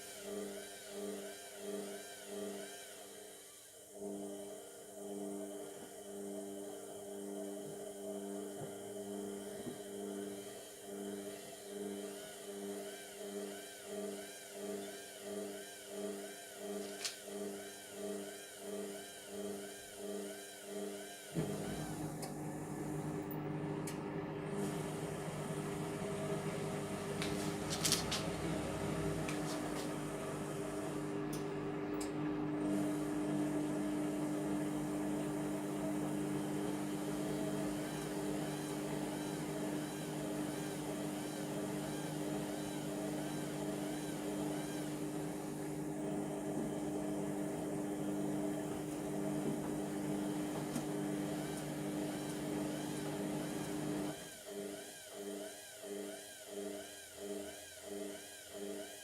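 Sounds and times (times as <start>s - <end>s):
washing machine motor hum: 4.0s - 12.6s, 21.4s - 54.3s.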